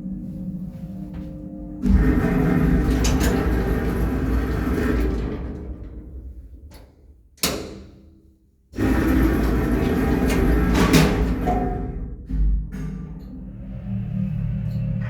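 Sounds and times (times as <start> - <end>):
lift machinery running: 0.3 - 6.7, 8.8 - 12.0.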